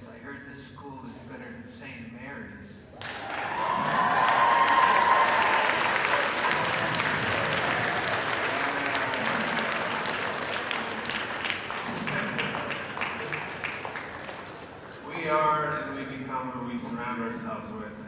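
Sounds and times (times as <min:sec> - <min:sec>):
audience clapping and cheering: 0:03.0 - 0:15.0
person whooping: 0:03.3 - 0:07.7.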